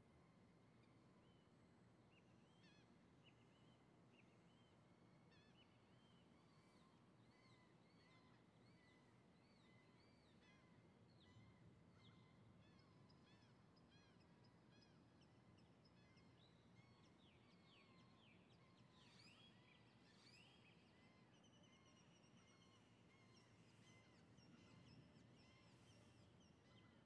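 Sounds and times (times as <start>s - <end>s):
faint birdsong chirps and whistles: 0.2s - 27.0s.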